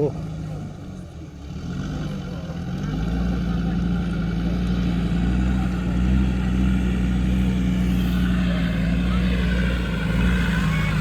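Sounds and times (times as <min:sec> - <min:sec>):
engine running hard under load: 0:00.0 - 0:11.0.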